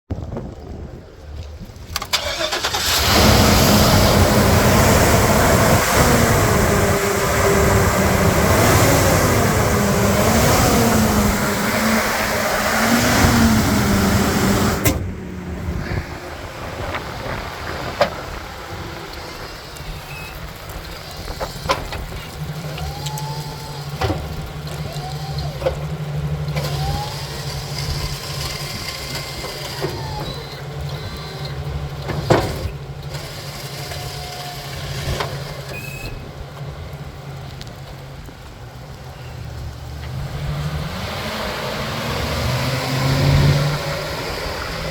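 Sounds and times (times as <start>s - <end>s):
truck engine humming: 0.7s - 44.9s
short whining tones: 22.7s - 25.8s.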